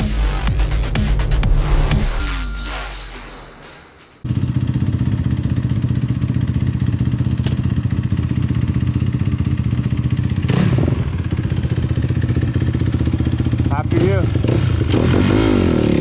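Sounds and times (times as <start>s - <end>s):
electronic music: 0.0s - 4.2s
dirt bike engine running: 4.2s - 16.0s
sharp click: 7.4s - 7.6s.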